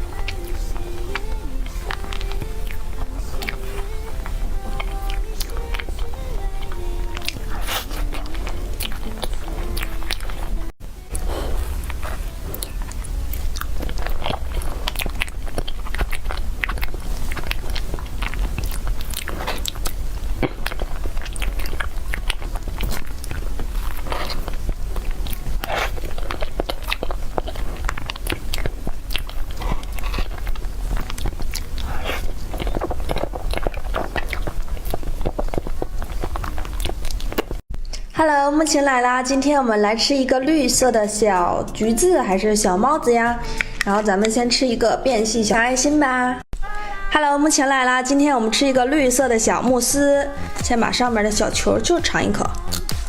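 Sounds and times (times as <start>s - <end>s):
person chewing cake: 0.0s - 38.1s, 43.4s - 44.4s, 52.5s - 53.0s
low hum: 0.0s - 38.6s.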